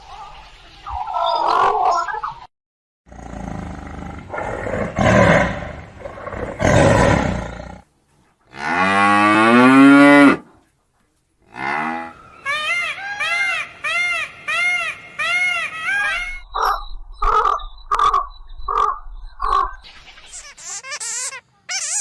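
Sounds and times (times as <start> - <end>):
rough noisy animal call: 3.1 - 7.8, 11.4 - 19.9
long mooing animal call: 11.5 - 12.2.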